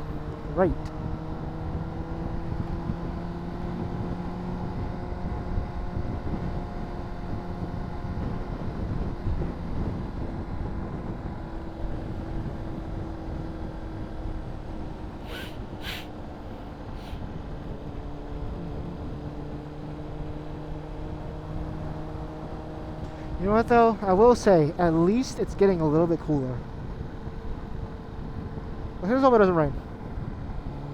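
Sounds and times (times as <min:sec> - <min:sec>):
wind and road noise: 0:00.0 - 0:30.9
short high hisses: 0:15.2 - 0:17.2.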